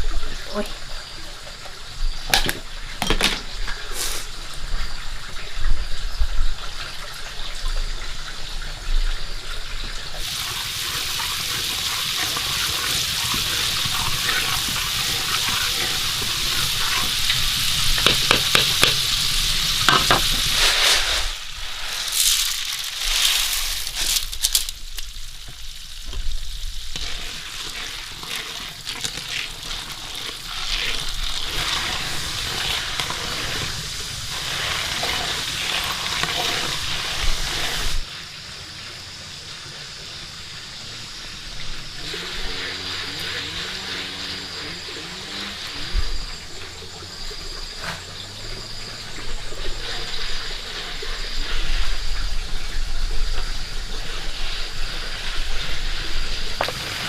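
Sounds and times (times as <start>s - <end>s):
food sizzling in a pan: 10.2s - 57.0s
utensil knocking on a pan: 18.0s - 19.0s, 19.9s - 20.3s.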